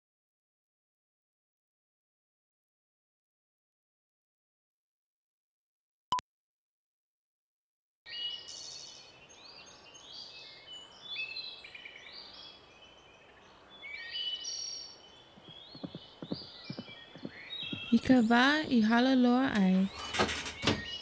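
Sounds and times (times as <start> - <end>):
songbirds singing: 8.1 - 21.0.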